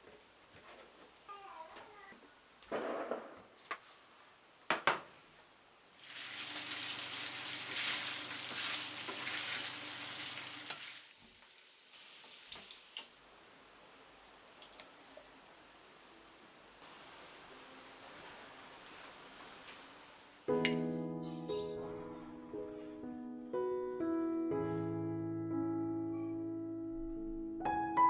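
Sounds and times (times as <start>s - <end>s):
food sizzling in a pan: 5.9s - 13.2s, 16.8s - 20.5s.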